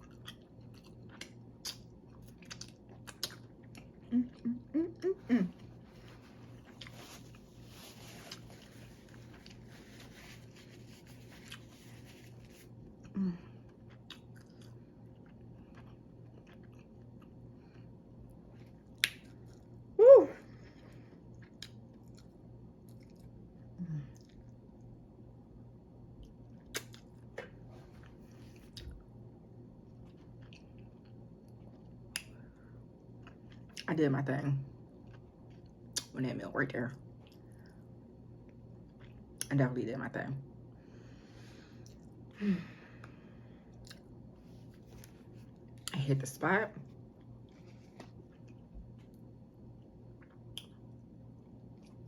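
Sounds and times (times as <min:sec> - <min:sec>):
faint chewing of food: 0:00.0 - 0:19.8, 0:20.7 - 0:25.0, 0:26.2 - 0:29.2, 0:29.8 - 0:33.9, 0:34.7 - 0:36.2, 0:37.0 - 0:39.5, 0:40.8 - 0:42.3, 0:42.9 - 0:46.1, 0:46.8 - 0:52.0
low steady hum: 0:00.0 - 0:52.0.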